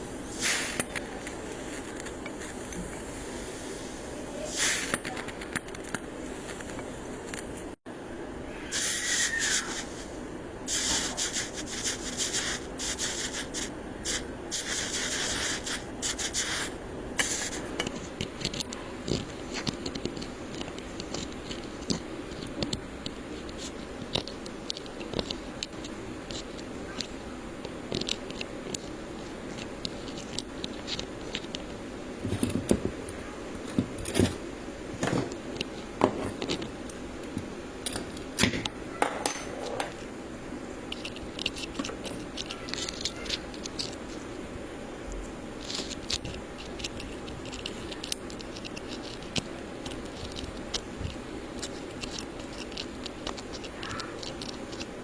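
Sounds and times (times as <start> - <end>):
rubbing and scraping on wire: 0.0 - 7.7, 10.7 - 32.7, 40.8 - 44.4, 45.5 - 55.0.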